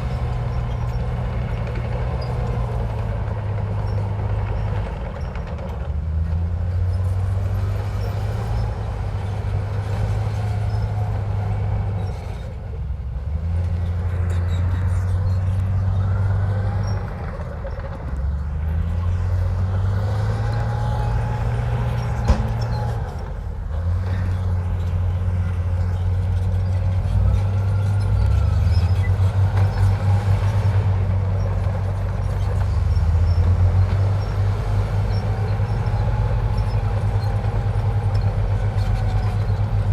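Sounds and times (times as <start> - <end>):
bulldozer diesel engine working: 0.0 - 39.9
faint squeaks: 13.4 - 39.9.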